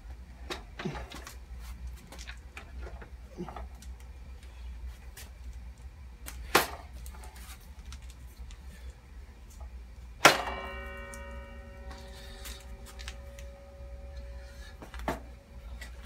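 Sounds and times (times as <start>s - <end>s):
metal being struck: 10.2s - 15.6s
ringing metallic tone: 10.2s - 16.0s.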